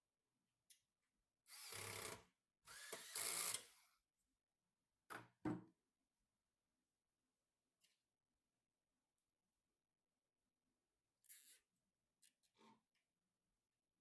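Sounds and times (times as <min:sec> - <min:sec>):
small power tool running: 0:02.7 - 0:03.8.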